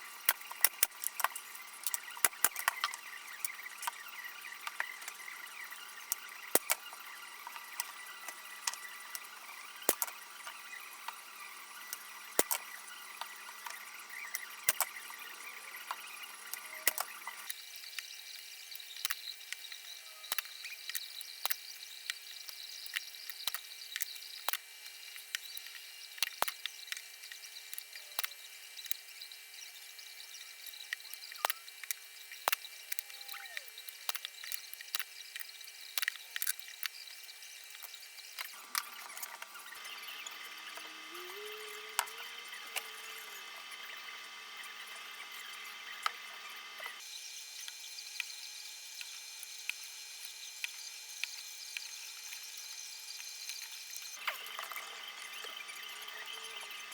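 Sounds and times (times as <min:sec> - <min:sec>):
sharp clicks and ticks: 0:00.2 - 0:18.0.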